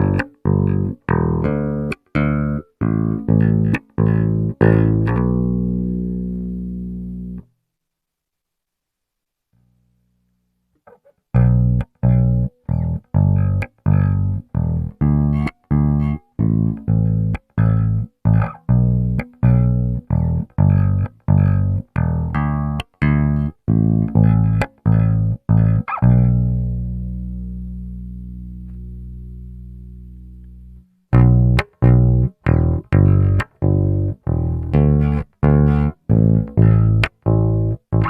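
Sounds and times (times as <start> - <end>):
electric bass notes: 0.0 - 7.5, 11.3 - 38.0.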